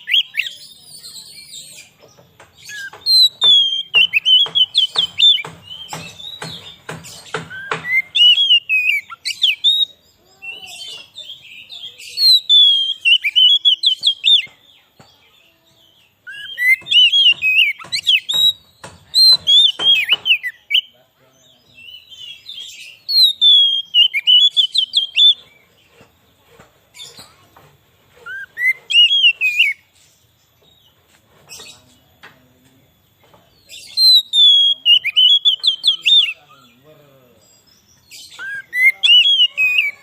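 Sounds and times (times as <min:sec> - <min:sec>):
bird singing whistled phrases: 0:07.5 - 0:14.5, 0:16.2 - 0:20.9, 0:21.8 - 0:25.5, 0:28.3 - 0:29.8, 0:33.8 - 0:36.8, 0:38.1 - 0:40.0.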